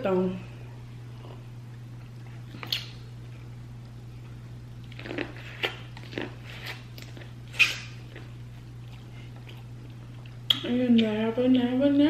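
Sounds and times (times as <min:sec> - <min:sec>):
person biting and chewing food: 0:01.2 - 0:03.5, 0:04.2 - 0:10.6.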